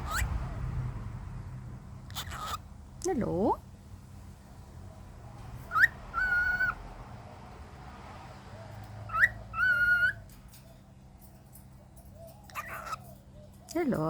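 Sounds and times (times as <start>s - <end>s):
cockatiel chirping and whistling: 0.1s - 0.3s, 5.7s - 6.8s, 9.1s - 10.2s, 12.5s - 13.0s.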